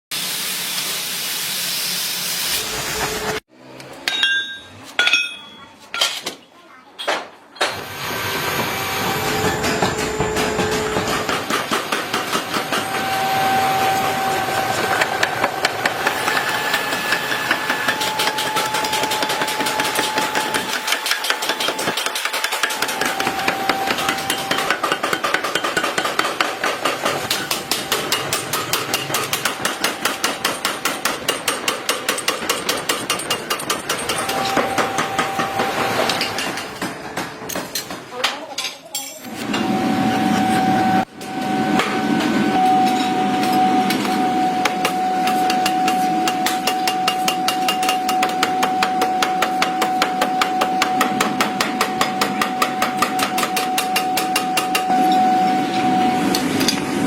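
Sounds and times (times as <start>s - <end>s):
metallic ring: 2.5s - 3.4s, 4.1s - 5.6s
hammering on metal: 15.6s - 38.4s.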